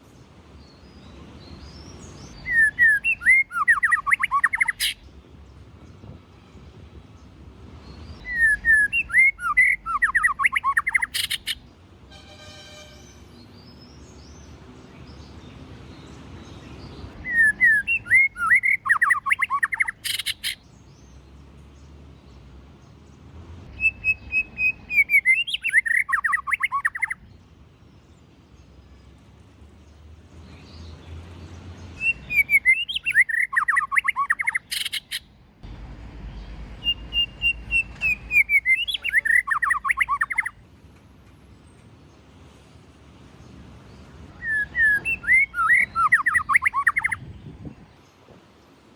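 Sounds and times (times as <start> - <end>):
bird singing whistled phrases: 2.4 - 5.0, 8.2 - 11.6, 17.2 - 20.6, 23.7 - 27.2, 32.0 - 35.2, 36.8 - 40.6, 44.4 - 47.2.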